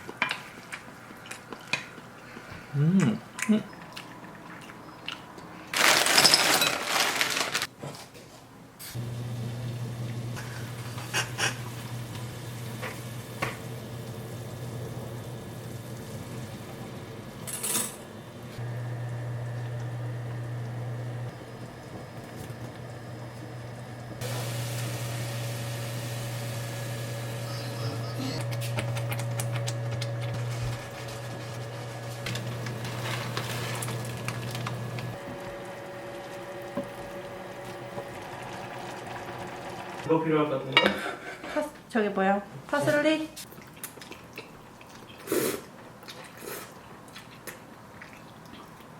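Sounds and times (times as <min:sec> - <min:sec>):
low electrical hum: 0:00.0 - 0:48.9
kitchenware clinking: 0:05.8 - 0:08.0, 0:40.7 - 0:41.6
wet food squishing and bubbling: 0:43.4 - 0:48.9.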